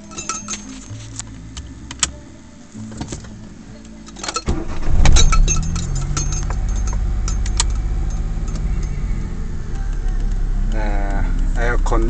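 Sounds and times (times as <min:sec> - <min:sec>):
keys jingling: 0:00.0 - 0:01.2, 0:04.0 - 0:09.5
key turned in ignition: 0:04.1 - 0:11.7
car engine starting and idling: 0:04.3 - 0:12.0.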